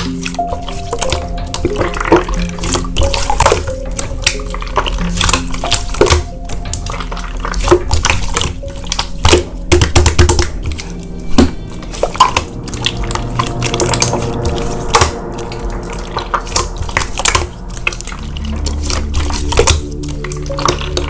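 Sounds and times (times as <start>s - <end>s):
background music: 0.0s - 21.0s
slime squishing wet pops: 0.0s - 21.0s.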